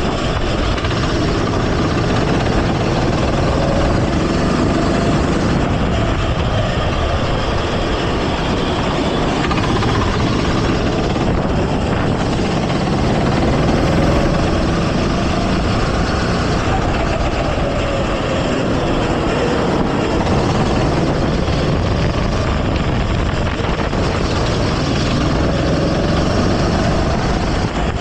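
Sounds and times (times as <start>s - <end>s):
go-kart engine running: 0.0s - 28.0s
steady rush of noise: 0.0s - 28.0s.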